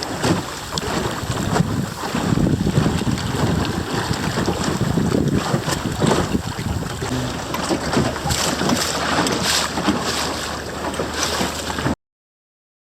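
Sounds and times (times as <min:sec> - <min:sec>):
wind buffeting microphone: 0:00.0 - 0:10.1
water rushing along boat hull: 0:00.0 - 0:12.0.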